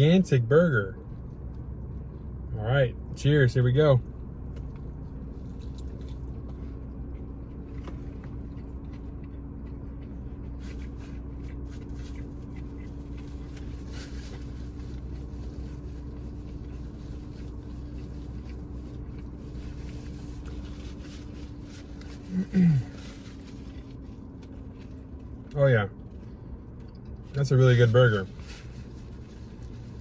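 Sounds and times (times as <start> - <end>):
low hum: 0.0 - 30.0
chewing burger: 4.1 - 27.4.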